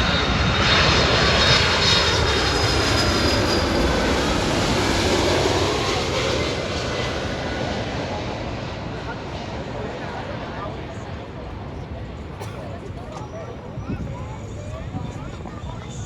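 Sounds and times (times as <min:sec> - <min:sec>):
jet engines rushing: 0:00.0 - 0:16.0.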